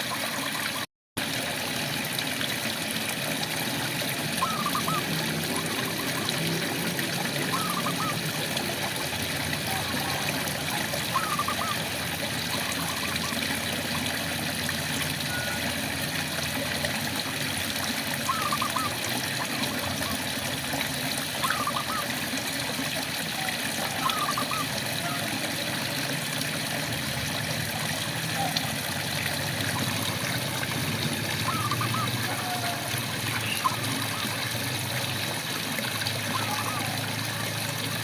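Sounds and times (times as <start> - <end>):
frogs calling: 4.2 - 8.4, 9.6 - 13.7, 18.2 - 20.2, 21.4 - 22.1, 23.4 - 25.4, 31.4 - 34.5, 36.3 - 37.4.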